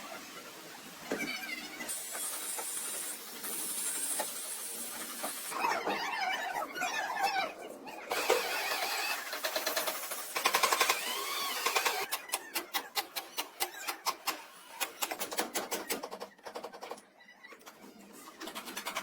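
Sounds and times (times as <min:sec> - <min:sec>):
rapid mechanical clicking and knocking: 0:08.1 - 0:17.1, 0:17.7 - 0:19.0.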